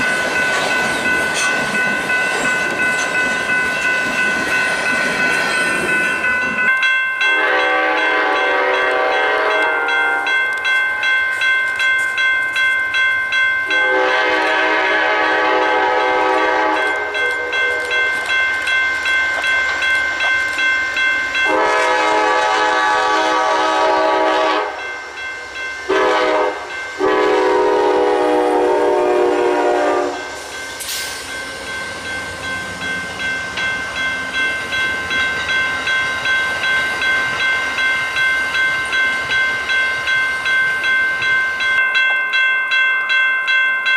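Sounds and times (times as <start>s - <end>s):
railroad crossing bell ringing: 0.0s - 43.9s
train horn: 7.3s - 10.4s, 13.7s - 18.1s, 21.4s - 24.9s, 25.9s - 30.2s.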